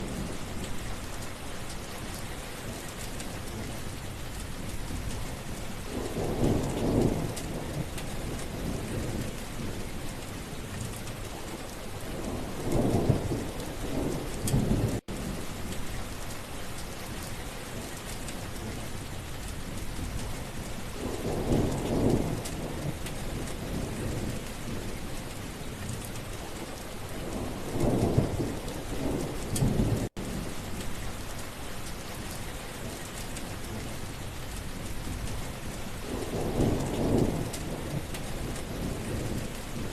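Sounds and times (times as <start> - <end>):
heavy rain falling: 0.0 - 39.9
low rumble of thunder: 0.0 - 39.9.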